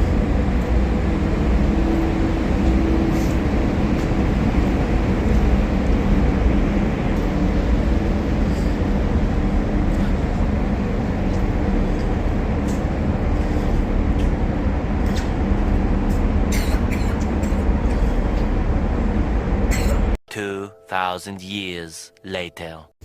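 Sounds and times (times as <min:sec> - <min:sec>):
ferry engines droning: 0:00.0 - 0:20.2.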